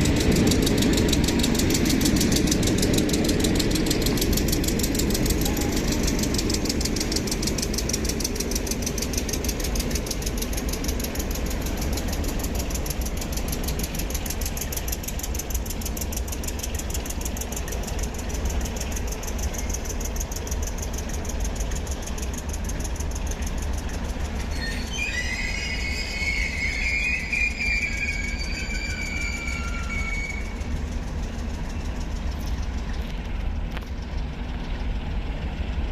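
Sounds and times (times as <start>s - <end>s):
train rumbling on track: 0.0s - 35.9s
high wavering wheel squeal: 24.0s - 32.0s.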